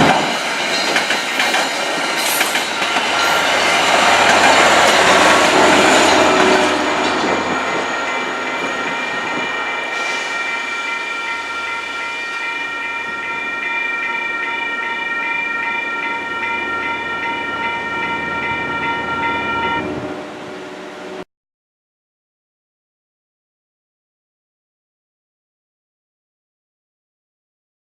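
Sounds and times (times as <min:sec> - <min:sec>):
wheels clacking on rails: 0:00.0 - 0:19.6
train rumbling past: 0:00.0 - 0:21.2
crossing warning bell ringing: 0:00.2 - 0:21.2.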